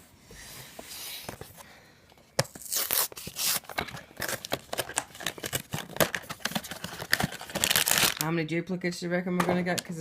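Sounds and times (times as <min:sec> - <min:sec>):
packaging rustling and tearing: 0:02.4 - 0:08.3.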